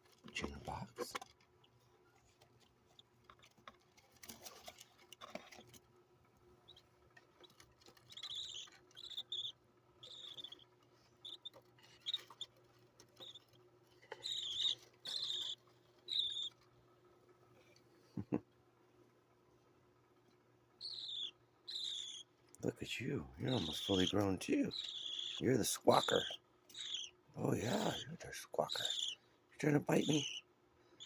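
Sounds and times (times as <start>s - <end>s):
bird chicks chirping: 6.6s - 16.6s, 20.8s - 30.5s.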